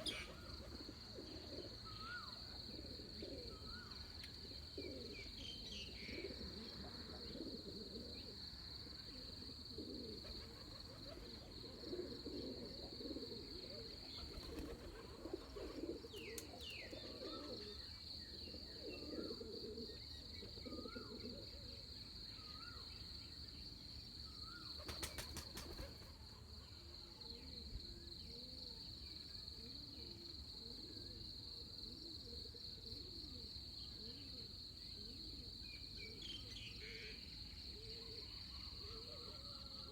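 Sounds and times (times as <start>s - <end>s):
doves cooing: 0.0s - 21.8s, 24.5s - 26.2s, 37.8s - 39.9s
high insect trill: 9.1s - 26.6s.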